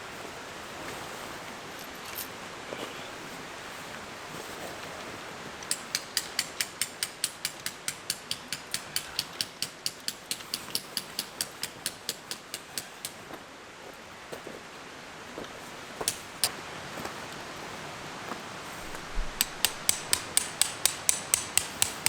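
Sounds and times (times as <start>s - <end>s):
mechanism clicking rapidly: 5.7s - 13.1s, 19.4s - 22.0s.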